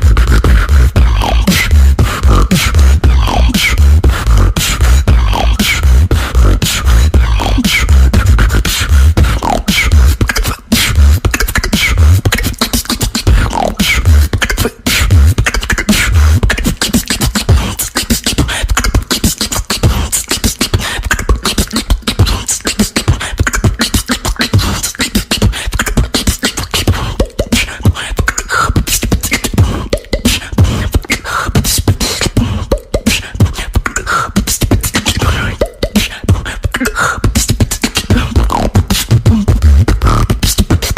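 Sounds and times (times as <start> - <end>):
person beatboxing: 0.0 - 40.9.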